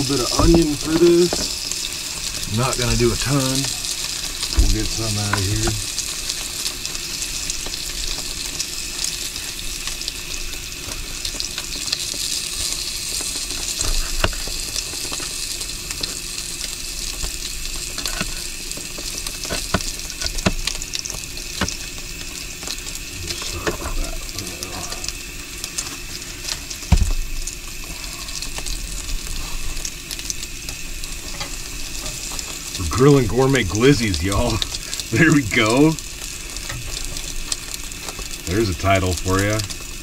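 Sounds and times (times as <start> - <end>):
meat sizzling on grill: 0.0 - 40.0
loud thump: 4.6 - 5.0, 26.9 - 27.2.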